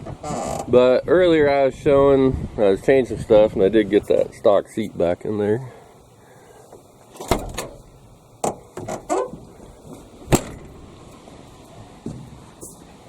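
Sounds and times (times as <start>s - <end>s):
knocks and clunks of car parts: 7.1s - 10.8s, 12.0s - 12.4s.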